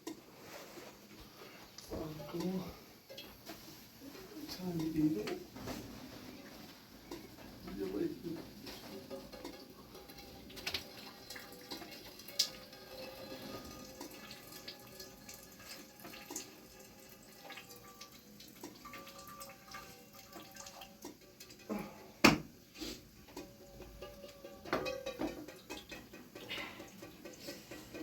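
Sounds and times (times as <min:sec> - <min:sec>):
water dripping: 0:06.4 - 0:22.5, 0:23.3 - 0:28.0.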